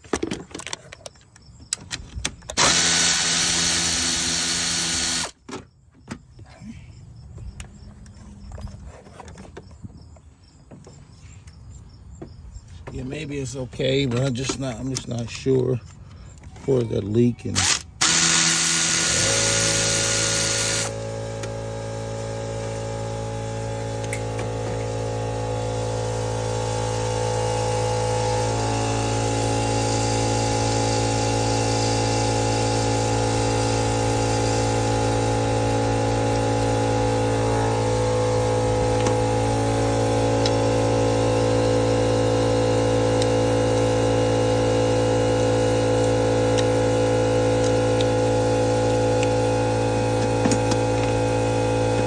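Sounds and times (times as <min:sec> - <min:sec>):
motor humming: 0:02.4 - 0:05.4, 0:17.2 - 0:52.0.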